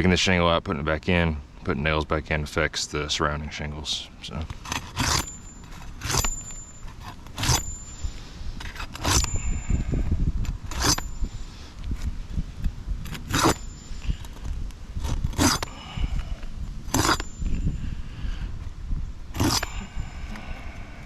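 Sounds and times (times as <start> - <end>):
low steady rumble: 0.0 - 21.0
metal tool scraping shingles: 4.4 - 9.9, 10.5 - 12.1, 13.0 - 16.3, 16.9 - 17.7, 19.3 - 20.0.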